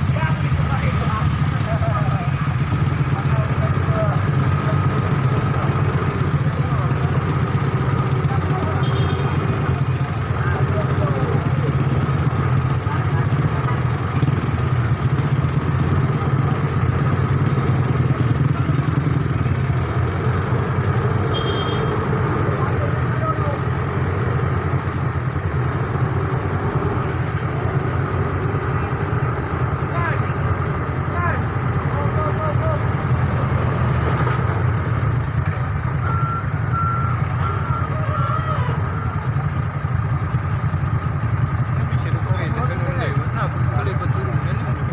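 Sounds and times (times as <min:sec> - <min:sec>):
vehicle engine rumbling: 0:00.0 - 0:44.9
vehicle reversing alarm beeping: 0:35.8 - 0:39.6.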